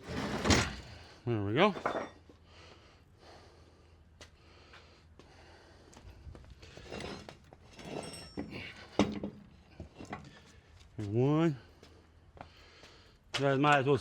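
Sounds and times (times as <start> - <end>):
man breathing heavily and snorting: 2.2 - 7.4, 8.4 - 10.9, 11.6 - 13.3.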